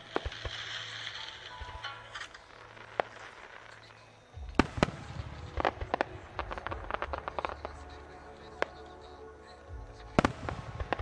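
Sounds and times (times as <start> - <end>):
firework shells bursting: 0.0 - 7.9
low rumble: 4.3 - 11.0.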